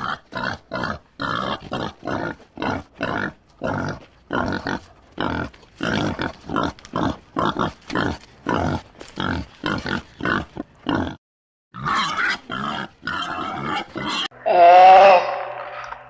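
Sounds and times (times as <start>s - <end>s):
animal grunting: 0.0s - 11.2s, 11.8s - 16.0s.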